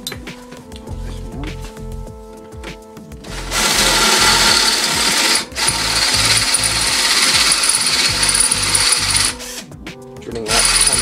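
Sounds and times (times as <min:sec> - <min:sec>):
power drill drilling metal: 0:03.3 - 0:09.6, 0:10.5 - 0:11.0.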